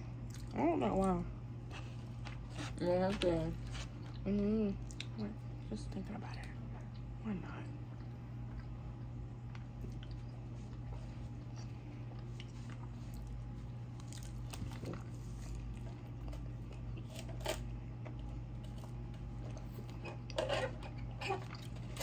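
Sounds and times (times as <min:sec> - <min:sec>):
chewing with wet mouth sounds: 0:00.0 - 0:22.0
low room hum: 0:00.0 - 0:22.0.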